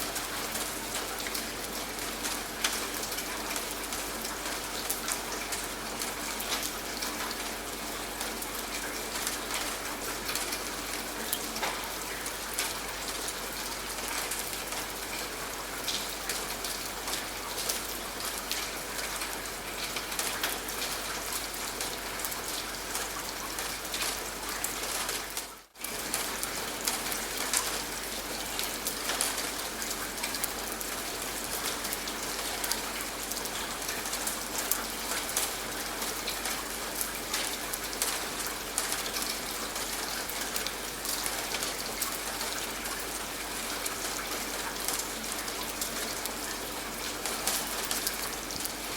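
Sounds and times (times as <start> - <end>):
rain pattering on a surface: 0.0 - 48.9.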